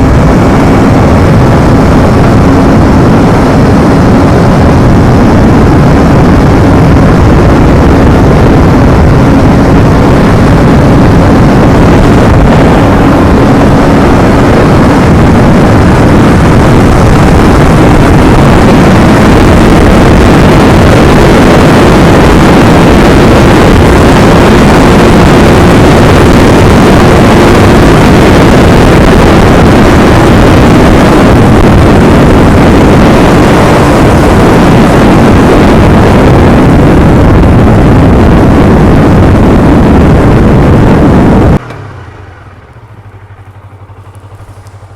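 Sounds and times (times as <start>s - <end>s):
motorcycle engine running: 0.0s - 44.9s
wind rushing over microphone: 0.0s - 44.9s.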